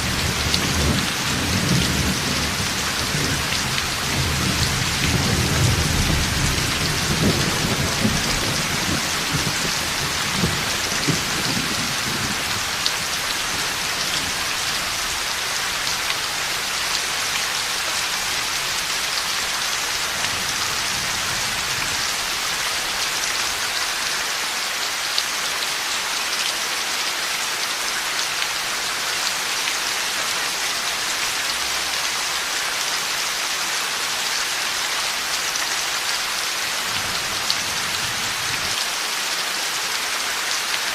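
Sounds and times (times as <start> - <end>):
heavy rain falling: 0.0 - 40.9
thunder rumbling: 0.3 - 12.8.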